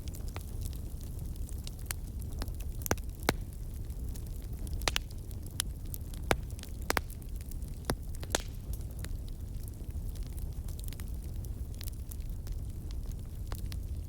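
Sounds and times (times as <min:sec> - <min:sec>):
low rumble of flame: 0:00.0 - 0:14.0
wood fire crackling and popping: 0:00.0 - 0:14.0.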